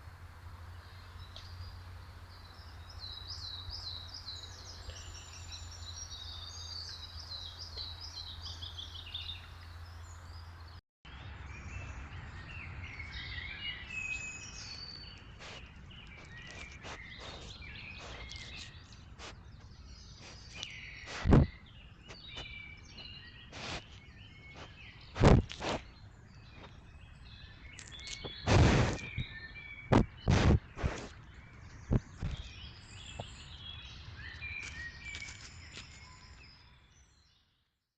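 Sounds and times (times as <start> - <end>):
small birds singing: 0.0 - 37.8
loud thumps near microphone: 21.2 - 21.6, 29.9 - 31.1.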